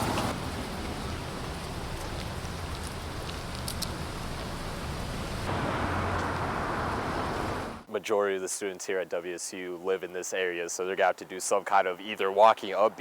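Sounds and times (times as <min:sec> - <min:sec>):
street traffic passing: 0:00.0 - 0:07.9.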